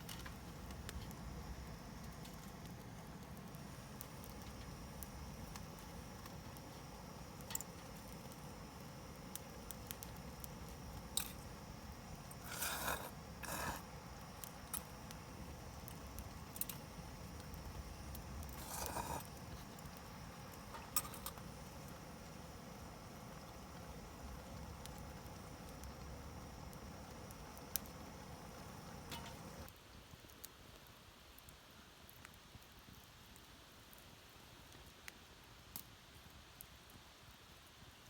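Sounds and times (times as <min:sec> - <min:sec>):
campfire crackling: 0:00.0 - 0:29.7.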